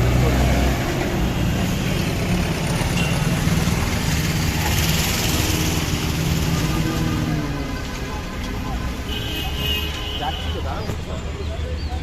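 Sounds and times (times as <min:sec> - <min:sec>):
vehicle engine humming: 0:00.0 - 0:09.1
street noise: 0:00.0 - 0:12.0.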